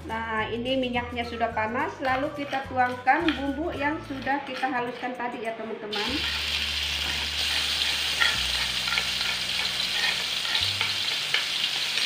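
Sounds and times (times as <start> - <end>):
metal spoon scraping bowl: 2.0 - 11.6
spice paste sizzling in oil: 5.9 - 12.0.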